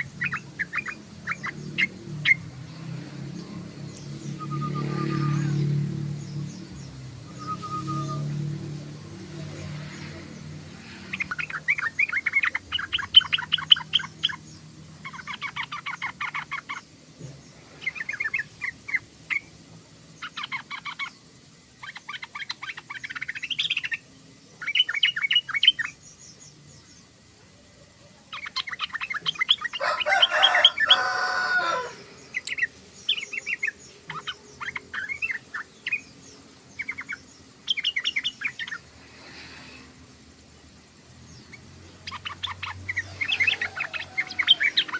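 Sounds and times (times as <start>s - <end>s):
bird chattering: 0.0s - 2.7s, 9.2s - 17.0s, 20.2s - 24.0s, 28.3s - 39.5s, 41.4s - 44.9s.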